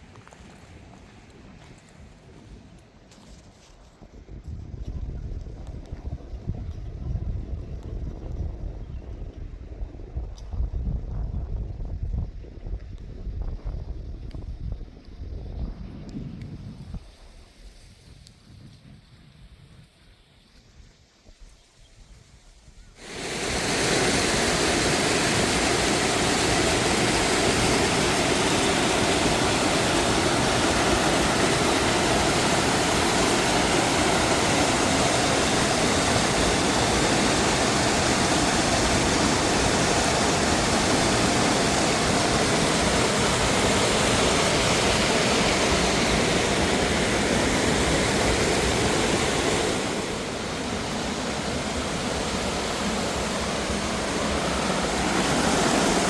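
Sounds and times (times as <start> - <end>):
waterfall rushing over rocks: 23.0 - 56.0.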